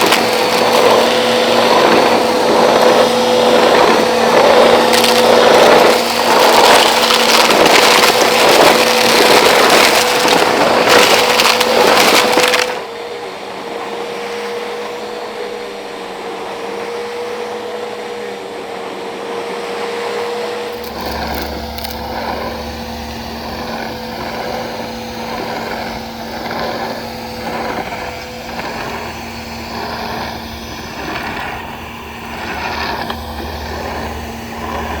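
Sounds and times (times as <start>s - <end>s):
grit rattling into vacuum: 0.0s - 12.9s, 20.7s - 35.0s
upright vacuum cleaner running: 0.0s - 35.0s.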